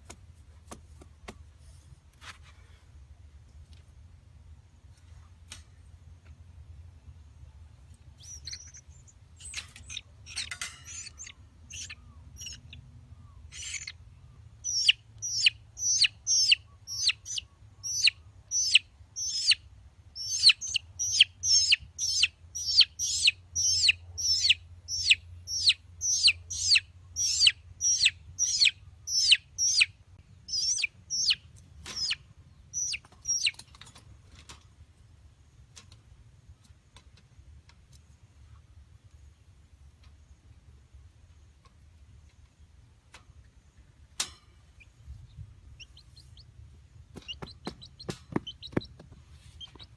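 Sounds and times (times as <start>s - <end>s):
chick peeping: 7.9s - 19.6s, 20.2s - 33.8s, 44.7s - 49.9s.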